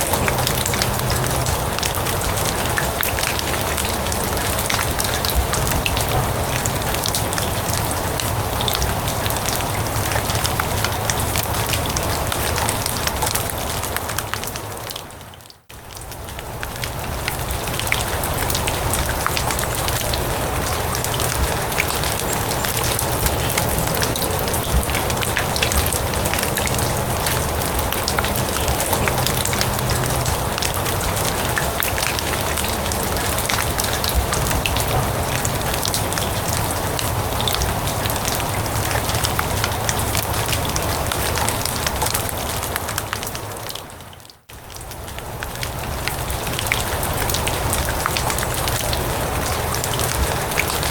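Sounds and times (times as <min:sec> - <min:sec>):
rain falling on grass: 0:00.0 - 0:50.9.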